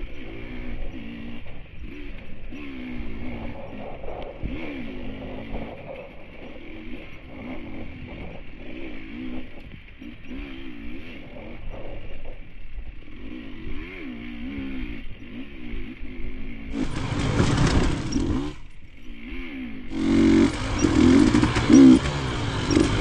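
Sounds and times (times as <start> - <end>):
dirt bike engine revving: 0.0 - 23.0
bike scraping and clattering: 16.7 - 23.0.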